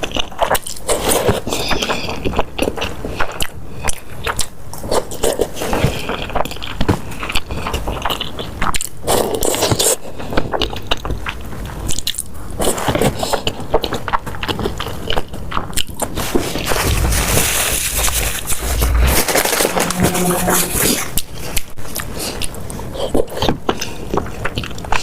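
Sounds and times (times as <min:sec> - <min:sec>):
person biting and chewing food: 0:00.0 - 0:19.6, 0:21.2 - 0:25.0.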